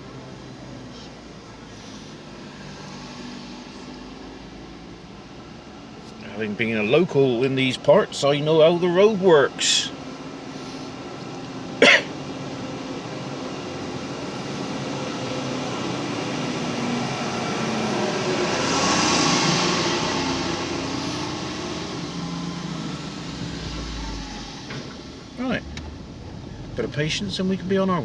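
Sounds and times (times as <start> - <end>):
truck passing close by: 9.8 - 28.0.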